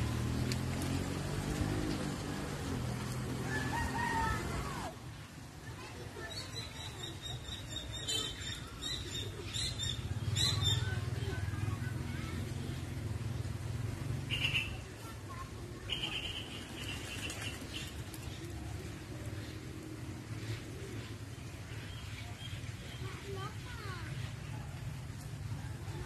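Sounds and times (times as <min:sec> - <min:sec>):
birds chirping: 0:14.2 - 0:24.5.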